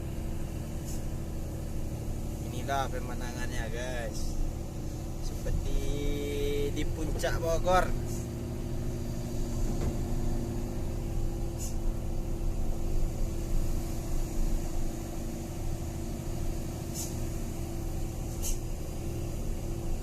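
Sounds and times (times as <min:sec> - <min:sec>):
truck diesel engine running: 0:00.0 - 0:20.0
short high hisses: 0:00.8 - 0:01.1, 0:11.5 - 0:11.9, 0:16.9 - 0:17.3, 0:18.3 - 0:18.7.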